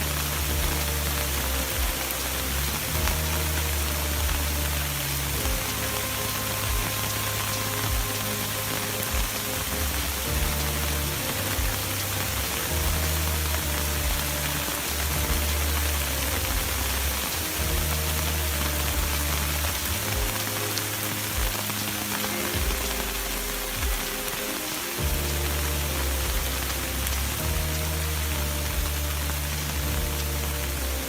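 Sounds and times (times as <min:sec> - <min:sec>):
heavy rain: 0:00.0 - 0:31.0
low sustained music: 0:00.0 - 0:31.0.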